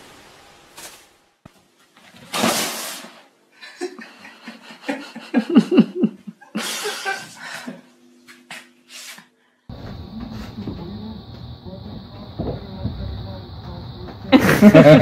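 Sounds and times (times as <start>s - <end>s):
person laughing: 3.6s - 9.2s, 14.2s - 15.0s.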